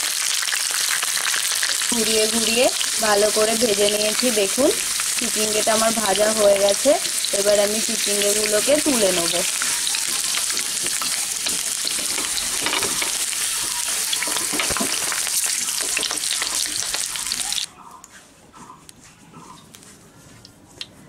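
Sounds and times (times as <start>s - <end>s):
vegetables sizzling in oil: 0.0s - 17.7s
metal spatula scraping and tapping: 9.5s - 15.2s.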